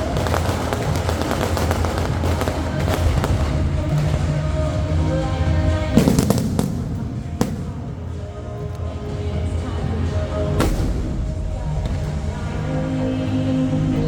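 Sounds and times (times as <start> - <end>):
heavy firework bang: 0.0 - 8.2, 10.5 - 13.3
fireworks crackling and popping: 0.0 - 14.0.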